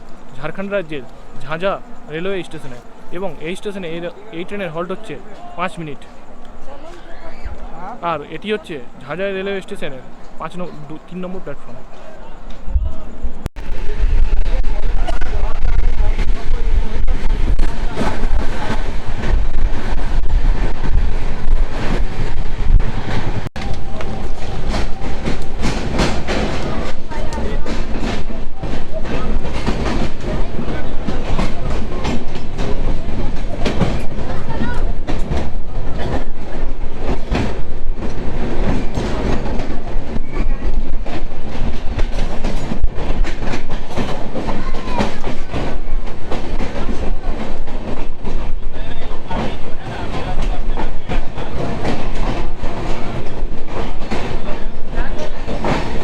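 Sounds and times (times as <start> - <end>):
train knocks: 0.0 - 56.0
train rumbling: 0.0 - 56.0
wind buffeting microphone: 12.4 - 56.0.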